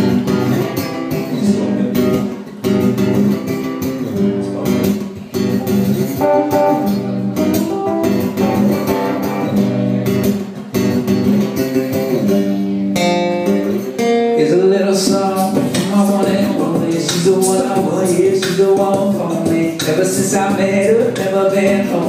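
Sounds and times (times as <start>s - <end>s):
guitar strumming chords: 0.0s - 22.0s.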